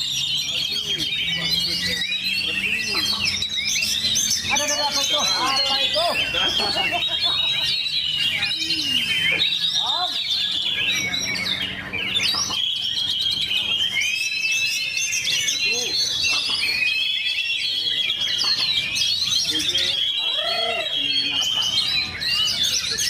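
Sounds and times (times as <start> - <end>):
bird singing whistles and trills: 0.0 - 23.0.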